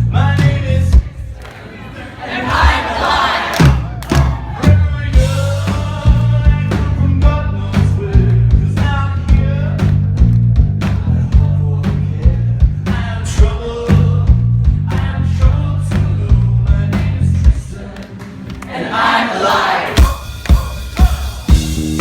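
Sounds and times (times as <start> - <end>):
man singing: 0.0 - 1.2, 4.6 - 10.0, 10.9 - 18.2, 20.0 - 21.8
live rock band playing: 4.1 - 15.0, 20.0 - 22.0.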